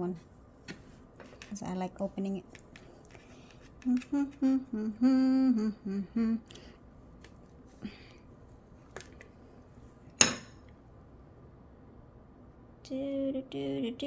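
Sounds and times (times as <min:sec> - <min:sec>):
person humming: 0:03.8 - 0:06.7.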